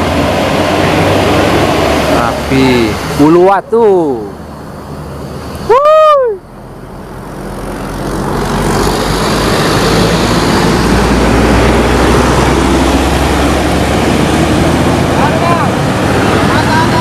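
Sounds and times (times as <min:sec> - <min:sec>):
diesel vehicle passing: 0:00.0 - 0:17.0
rising and falling tone: 0:07.2 - 0:17.0.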